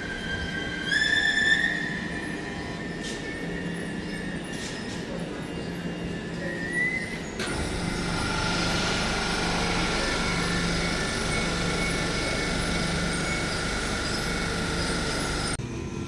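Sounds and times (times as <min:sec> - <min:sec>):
high whine: 0:07.4 - 0:15.6.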